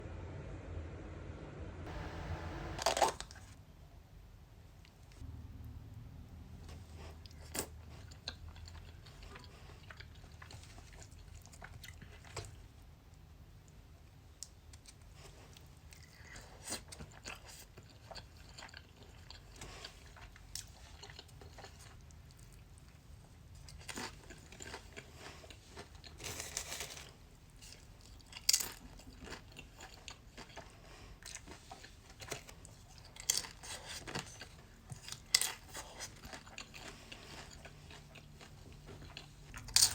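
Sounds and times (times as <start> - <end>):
low steady hum: 0.0 - 39.9
person crunching food: 14.7 - 22.9, 23.6 - 39.9.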